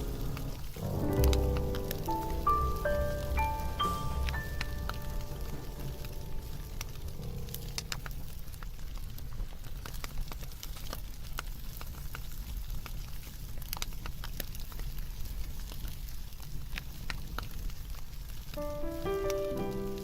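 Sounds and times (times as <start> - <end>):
low steady fire rumble: 0.0 - 20.0
wood fire crackling: 0.0 - 20.0.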